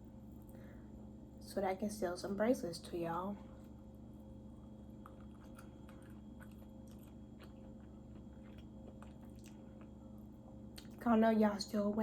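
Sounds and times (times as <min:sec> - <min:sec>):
person chewing food: 0:03.4 - 0:11.0.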